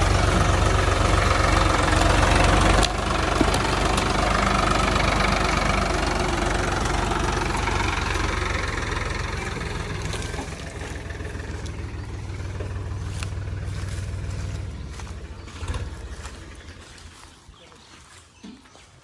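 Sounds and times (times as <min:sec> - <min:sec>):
tractor diesel engine running: 0:00.0 - 0:18.1.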